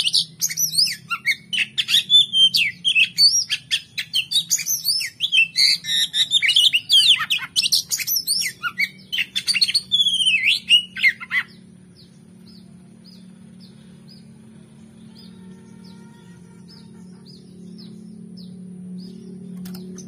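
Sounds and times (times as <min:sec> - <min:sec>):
bird singing whistling song: 0:00.0 - 0:11.6.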